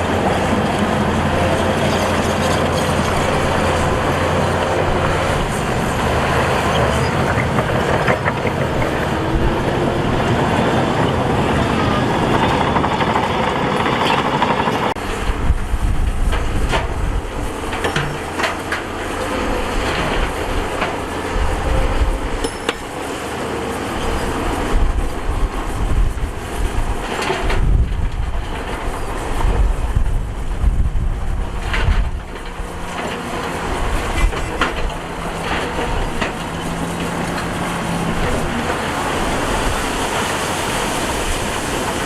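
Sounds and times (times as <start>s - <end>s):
heavy diesel machinery engine: 0.0s - 42.0s
knocks and clanks: 6.7s - 9.6s, 16.1s - 21.1s, 31.5s - 38.9s.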